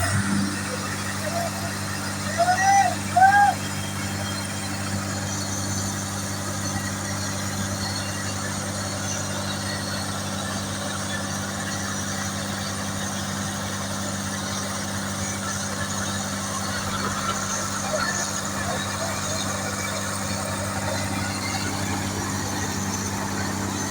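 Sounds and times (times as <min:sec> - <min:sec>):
machine engine humming: 0:00.0 - 0:07.4, 0:12.8 - 0:23.9.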